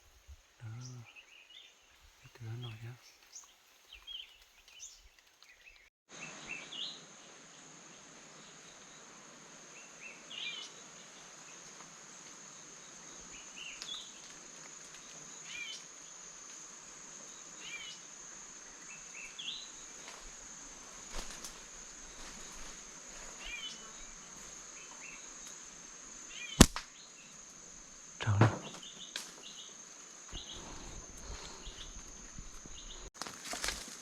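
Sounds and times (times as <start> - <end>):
insect droning: 0.0 - 34.0
bird chirping: 0.6 - 7.0.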